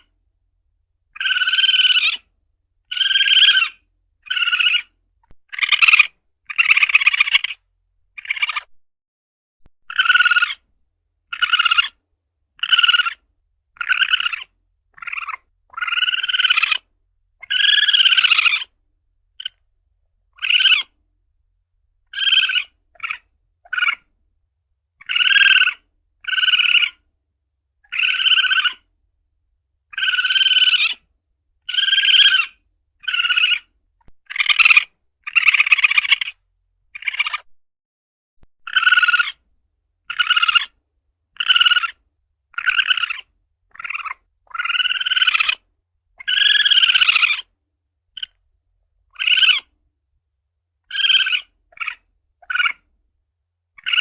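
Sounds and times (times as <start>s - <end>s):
civet calling: 1.1s - 8.7s, 9.8s - 12.0s, 12.6s - 13.2s, 13.8s - 18.7s, 19.4s - 19.6s, 20.3s - 21.0s, 22.0s - 24.1s, 25.0s - 27.1s, 27.8s - 28.9s, 29.9s - 37.5s, 38.6s - 39.4s, 40.0s - 47.5s, 48.2s - 48.4s, 49.1s - 49.7s, 50.8s - 52.9s, 53.8s - 54.0s.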